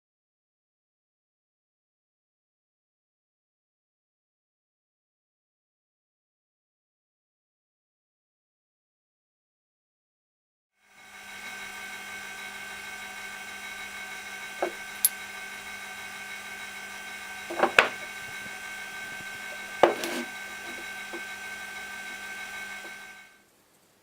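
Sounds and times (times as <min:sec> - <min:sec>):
machine tool whining: 0:10.9 - 0:23.4.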